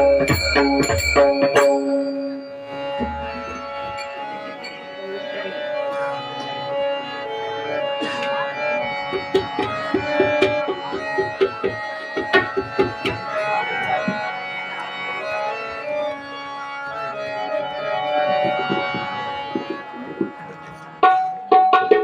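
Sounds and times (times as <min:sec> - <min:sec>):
harmonium melody: 0:00.0 - 0:22.0
hand drum strokes: 0:18.3 - 0:22.0.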